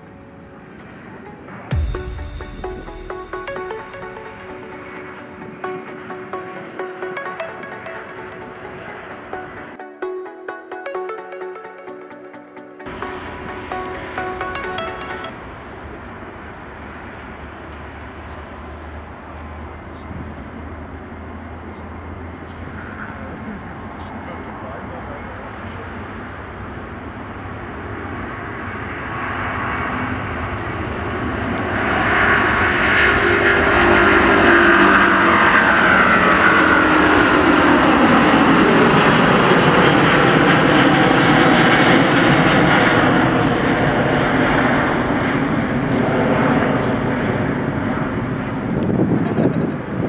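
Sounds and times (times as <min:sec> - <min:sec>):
jet engines at takeoff: 0:12.9 - 0:50.0.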